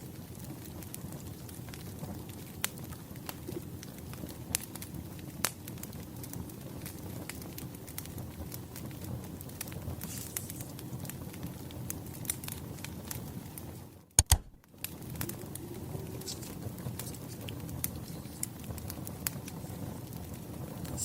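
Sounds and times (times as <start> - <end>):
wood fire crackling: 0.0 - 21.0
sharp clicks: 14.2 - 14.6.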